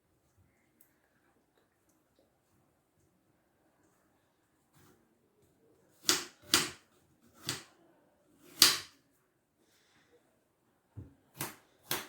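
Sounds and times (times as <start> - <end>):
knife chopping apple on board: 6.0 - 6.8, 7.4 - 7.7, 8.4 - 9.0, 11.3 - 12.0.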